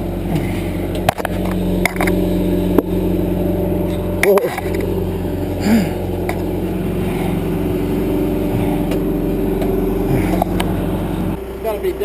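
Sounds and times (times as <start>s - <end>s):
diesel engine running: 0.0s - 12.0s
sharp metal clanks: 0.4s - 7.5s.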